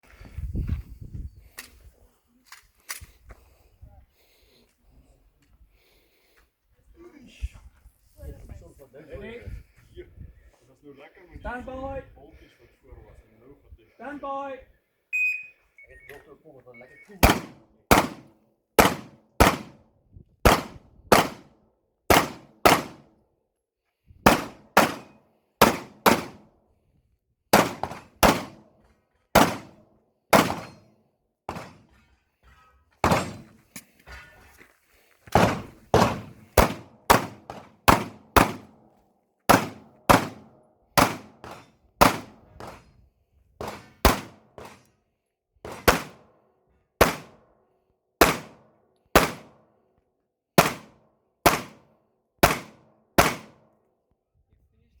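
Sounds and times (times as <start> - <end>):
pistol shots: 17.2 - 19.8, 20.4 - 21.5, 22.1 - 23.1, 24.3 - 26.5, 27.5 - 28.6, 29.4 - 30.9, 31.5 - 31.8, 33.0 - 33.5, 35.3 - 38.8, 39.5 - 42.8, 43.6 - 44.8, 45.7 - 46.3, 47.0 - 47.4, 48.2 - 48.6, 49.2 - 49.6, 50.6 - 53.7.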